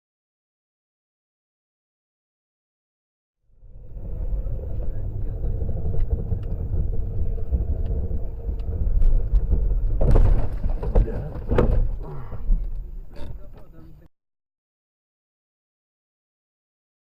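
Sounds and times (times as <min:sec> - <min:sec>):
car road and engine rumble: 0:03.5 - 0:14.1.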